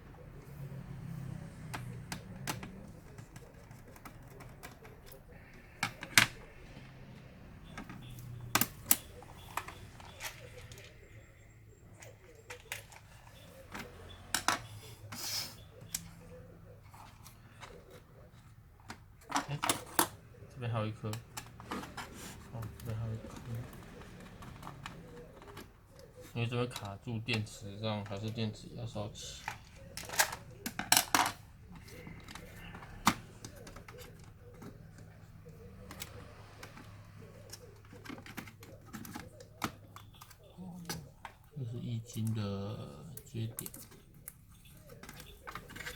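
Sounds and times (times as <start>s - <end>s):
plastic and metal parts scraping: 0.4s - 42.4s, 43.0s - 45.9s.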